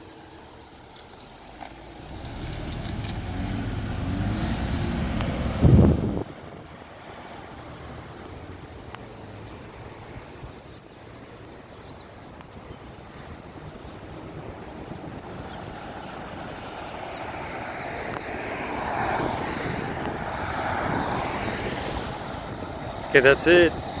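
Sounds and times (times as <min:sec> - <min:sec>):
street traffic noise: 0:00.0 - 0:24.0
vehicle passing: 0:00.2 - 0:08.6, 0:14.4 - 0:24.0.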